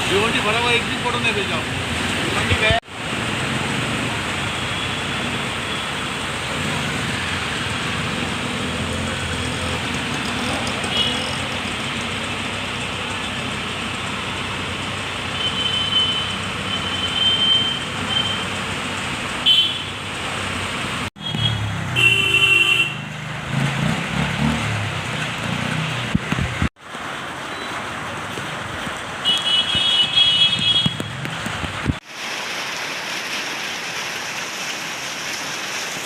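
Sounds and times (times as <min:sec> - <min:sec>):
street traffic: 0:00.0 - 0:36.0
vehicle horns honking: 0:15.4 - 0:18.5, 0:19.4 - 0:20.0, 0:21.2 - 0:23.1, 0:29.2 - 0:31.2.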